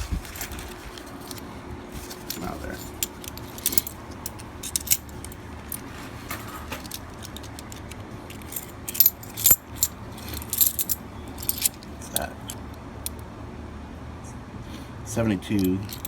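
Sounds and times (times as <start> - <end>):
low steady rumble: 0.0 - 16.0
coins clinking together: 2.3 - 5.4, 6.7 - 12.6, 15.5 - 16.0.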